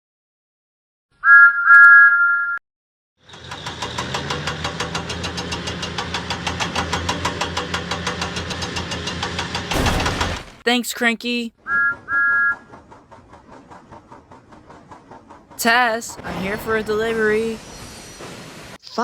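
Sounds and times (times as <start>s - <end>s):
steam engine chuffing: 3.2s - 9.7s, 11.9s - 18.8s.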